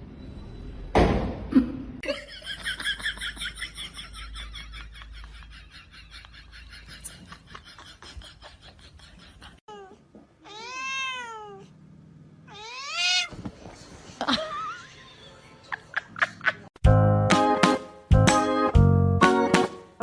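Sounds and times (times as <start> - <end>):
cat meowing: 9.7 - 11.7, 12.5 - 13.4.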